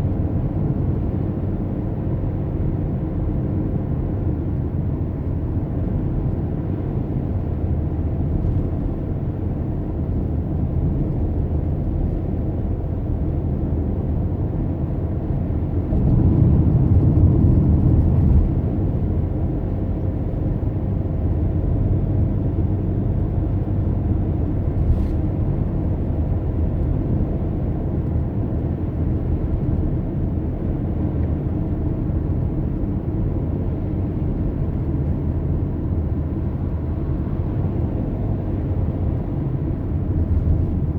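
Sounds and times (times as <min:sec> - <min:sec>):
car driving on road: 0:00.0 - 0:40.9.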